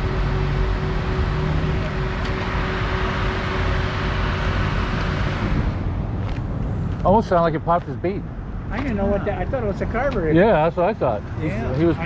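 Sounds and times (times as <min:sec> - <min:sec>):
thin steady hum: 0:00.0 - 0:07.0
car engine idling: 0:00.0 - 0:12.0.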